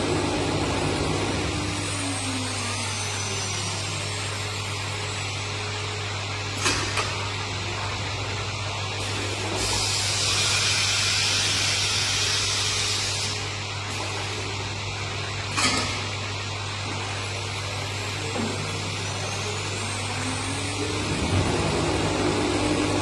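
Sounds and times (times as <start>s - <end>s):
woodworking machine running: 0.0s - 5.4s, 6.6s - 23.0s.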